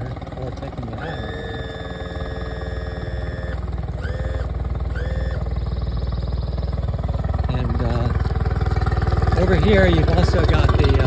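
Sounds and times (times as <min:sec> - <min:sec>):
electric motor whining: 0:00.0 - 0:07.9
outboard motor idling: 0:00.0 - 0:11.0.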